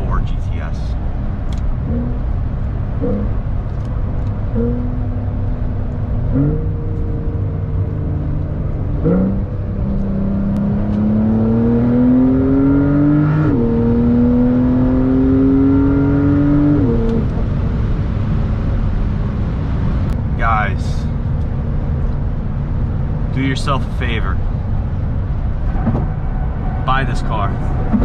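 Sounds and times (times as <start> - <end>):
car engine accelerating through gears: 1.4 - 20.2.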